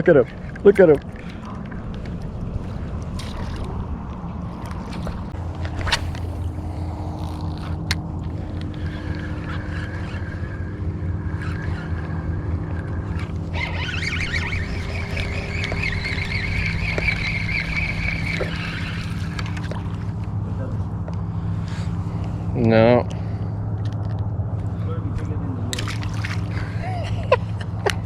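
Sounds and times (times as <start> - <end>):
boat motor humming: 0.0 - 28.0
high-pitched whine: 5.7 - 19.8.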